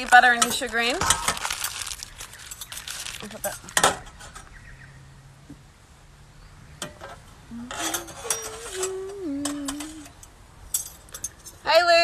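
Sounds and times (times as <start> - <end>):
person humming: 7.5 - 10.2
utensils clattering in mixing bowl: 7.7 - 8.9.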